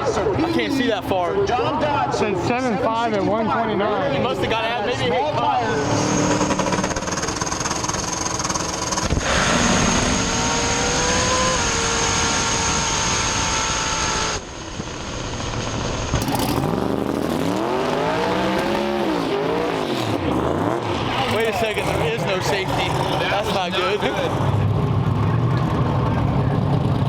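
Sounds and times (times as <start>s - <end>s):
drag race car engines: 0.0s - 27.0s
engine revving: 5.1s - 14.6s, 15.2s - 27.0s.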